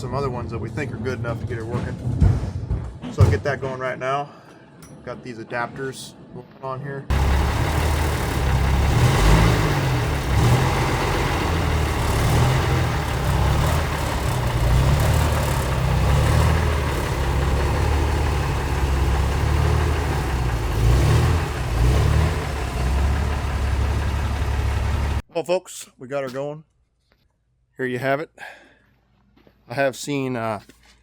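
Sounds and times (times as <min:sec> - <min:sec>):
truck engine revving: 0:07.1 - 0:25.2.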